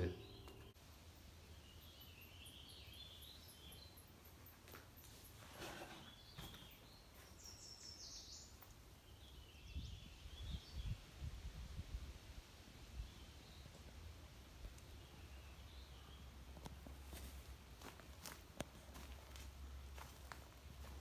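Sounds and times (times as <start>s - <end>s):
faint bird chirps: 0.0s - 0.8s.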